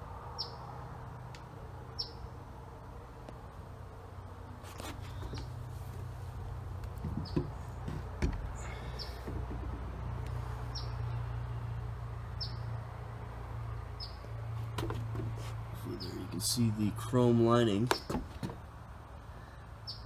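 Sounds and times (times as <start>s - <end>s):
bird chirping: 1.9s - 2.3s, 7.1s - 7.6s, 10.7s - 11.2s, 12.3s - 12.7s, 14.0s - 14.3s
sharp knocks on wooden deck: 6.8s - 10.0s, 14.7s - 15.5s, 17.9s - 18.6s.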